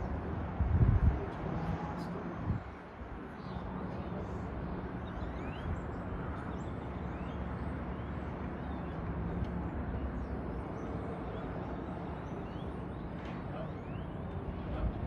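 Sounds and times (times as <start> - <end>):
wind rumble on microphone: 0.0 - 3.8.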